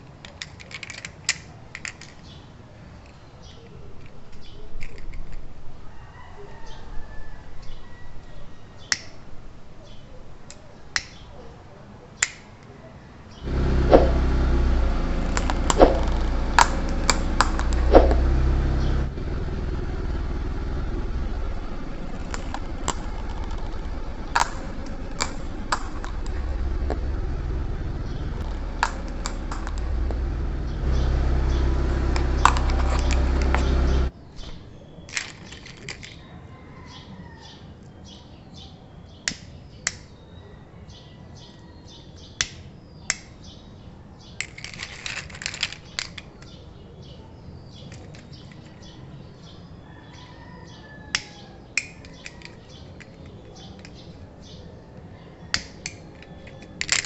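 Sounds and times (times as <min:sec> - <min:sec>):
car engine running: 0:13.4 - 0:34.1
plastic lighters cracking under tyres: 0:14.3 - 0:34.1, 0:55.6 - 0:57.0.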